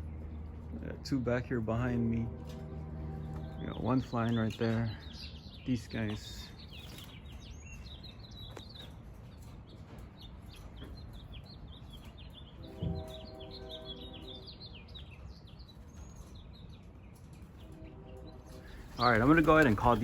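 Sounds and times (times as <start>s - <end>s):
low outdoor rumble: 0.0s - 7.2s, 17.6s - 20.0s
small birds chirping: 0.0s - 20.0s.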